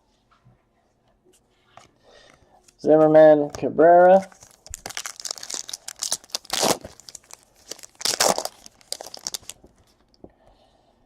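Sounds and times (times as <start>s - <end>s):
cards rustling: 4.0s - 10.0s
wrapper crinkling and tearing: 4.2s - 9.8s.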